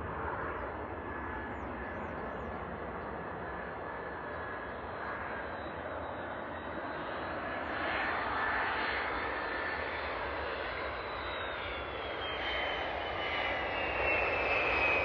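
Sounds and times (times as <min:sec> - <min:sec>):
jet engine whine falling: 0:00.0 - 0:15.0
jet engines rumble and hiss: 0:00.0 - 0:15.0.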